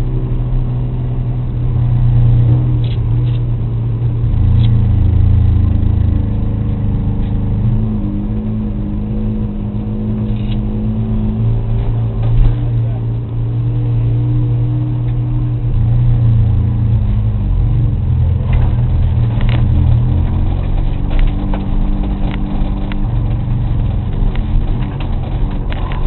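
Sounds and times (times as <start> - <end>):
race car engine revving: 0.0 - 26.0
sharp clicks and knocks: 18.3 - 26.0.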